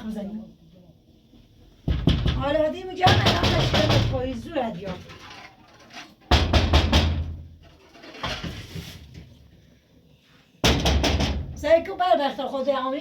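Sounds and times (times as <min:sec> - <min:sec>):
heavy pounding on a door: 0:01.8 - 0:04.5, 0:06.3 - 0:07.5, 0:10.6 - 0:11.8.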